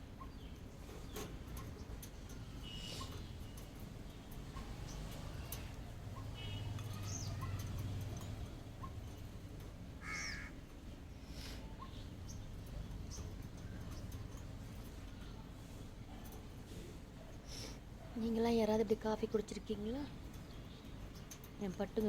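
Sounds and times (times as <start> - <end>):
parrots squawking: 10.0 - 10.6.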